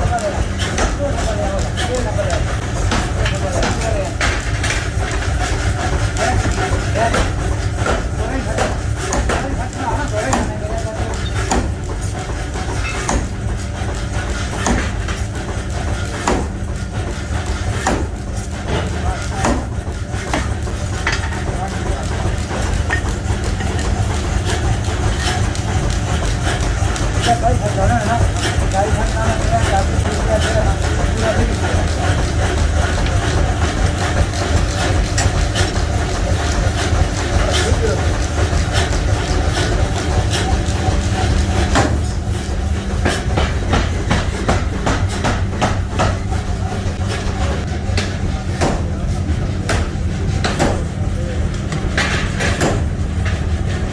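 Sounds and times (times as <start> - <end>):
workshop machinery humming: 0.0 - 53.9
sharp metal clanks and knocks: 0.1 - 27.3, 51.6 - 53.6
sharp metal knocks: 12.4 - 13.5.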